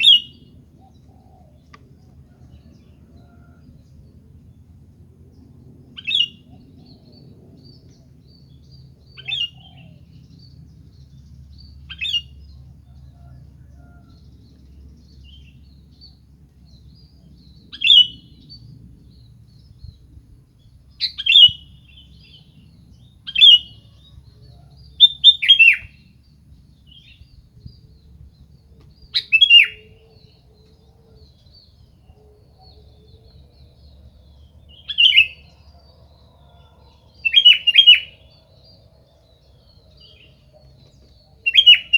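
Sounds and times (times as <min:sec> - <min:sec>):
bird giving sharp calls: 0:00.0 - 0:00.4, 0:29.2 - 0:29.9.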